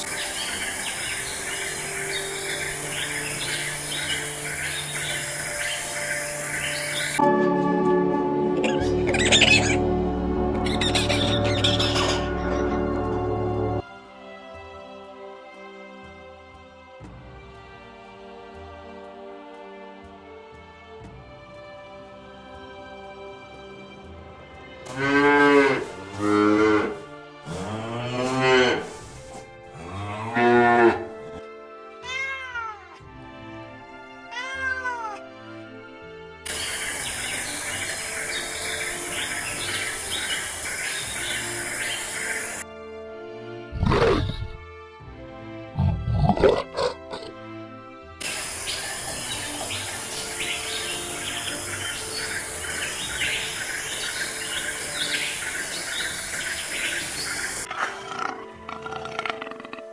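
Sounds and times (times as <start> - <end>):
high insect drone: 0.0 - 7.2, 36.5 - 42.6, 48.2 - 58.2
birds chirping: 0.0 - 7.3, 8.4 - 13.8, 36.5 - 42.6, 48.2 - 59.9
soft background music: 0.0 - 59.9
cow mooing: 29.7 - 31.2
cat meowing: 32.0 - 32.9, 34.3 - 35.2.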